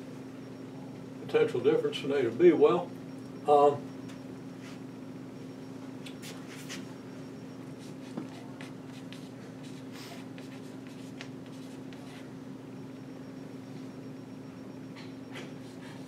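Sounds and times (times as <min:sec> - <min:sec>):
low room hum: 0:00.0 - 0:16.0
writing on a board: 0:07.8 - 0:12.3.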